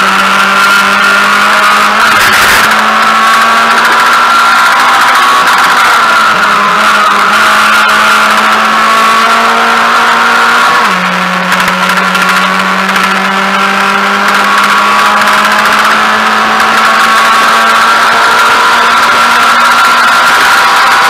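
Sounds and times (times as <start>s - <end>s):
race car engine accelerating: 0.0s - 21.0s.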